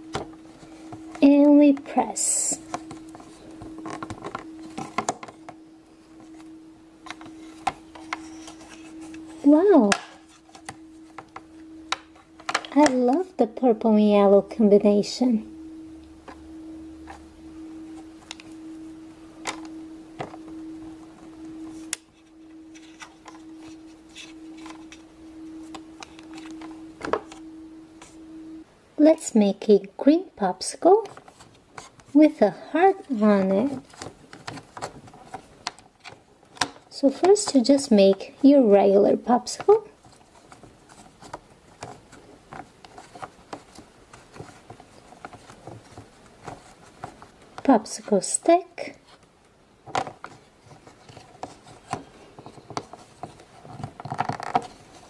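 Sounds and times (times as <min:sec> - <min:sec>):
low hum: 0:00.0 - 0:30.6
plastic tools clicking and tapping: 0:09.9 - 0:13.2.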